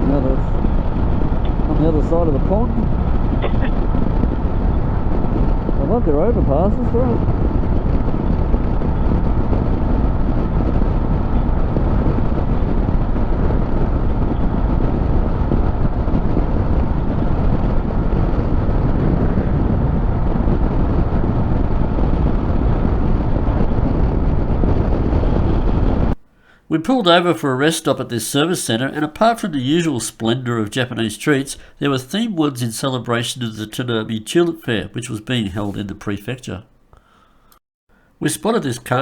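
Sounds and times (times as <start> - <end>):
motorcycle engine and road noise: 0.0 - 26.2
wind rush on microphone: 0.0 - 26.2.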